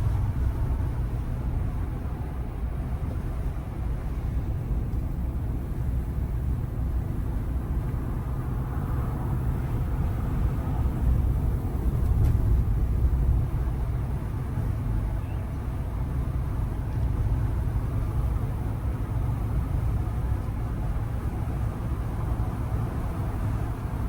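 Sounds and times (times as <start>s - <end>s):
truck engine and road rumble: 0.0s - 24.0s.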